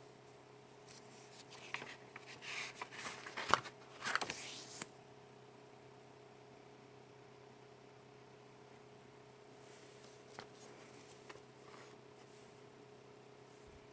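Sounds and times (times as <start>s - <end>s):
faint steady hum: 0.0s - 13.9s
paper pages rustling: 0.8s - 4.9s, 9.7s - 12.5s.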